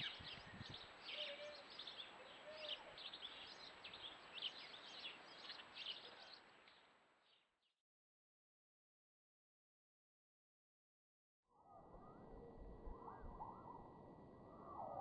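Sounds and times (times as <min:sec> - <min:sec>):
garden birds chirping: 0:00.0 - 0:07.6
faint high whine: 0:11.6 - 0:15.0.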